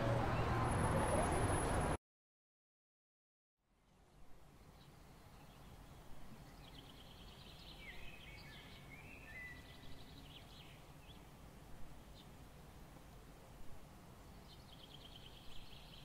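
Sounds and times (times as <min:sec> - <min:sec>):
low background noise: 0:03.6 - 0:16.0
faint songbird chirps and trills: 0:04.4 - 0:12.4, 0:14.1 - 0:16.0.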